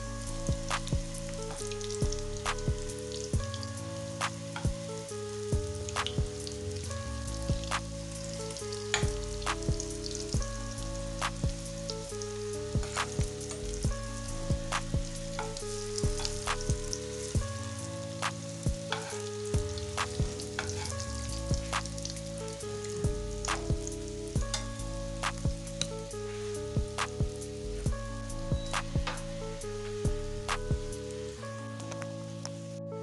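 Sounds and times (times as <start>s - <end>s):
hot oil sizzling in a pan: 0.0s - 31.4s
crackling pops: 0.6s - 3.6s, 5.9s - 7.0s, 7.6s - 10.5s, 11.2s - 12.2s, 12.8s - 14.0s, 14.7s - 17.5s, 18.2s - 22.4s, 23.0s - 26.2s.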